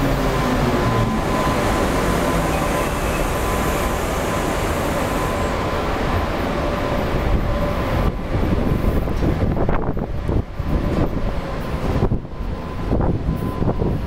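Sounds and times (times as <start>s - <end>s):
thin steady whine: 0.0s - 9.9s
train wheels rumbling and hissing: 0.0s - 14.0s.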